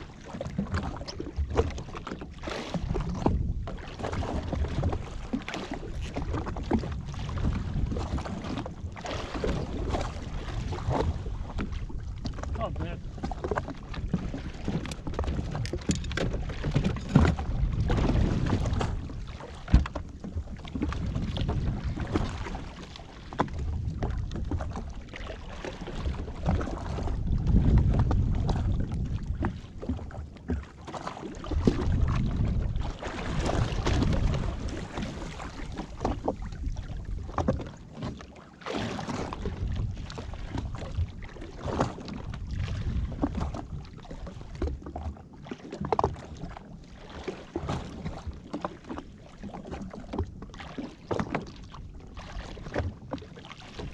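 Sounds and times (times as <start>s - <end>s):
water sloshing: 0.0s - 53.9s
knocks against hull: 10.8s - 22.6s, 33.3s - 38.2s
wind noise: 14.1s - 19.9s, 26.0s - 30.0s, 31.5s - 35.6s.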